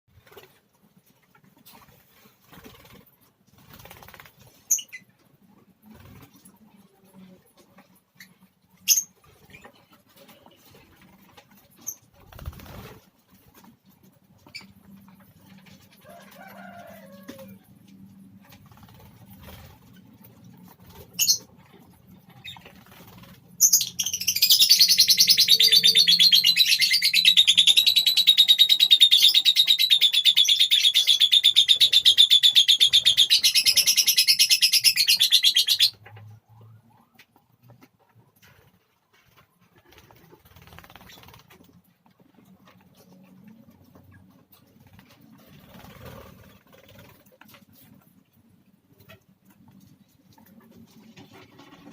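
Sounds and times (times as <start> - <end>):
high-pitched bird chatter: 4.0 - 5.2, 20.9 - 36.1
bird chirps: 23.6 - 36.0.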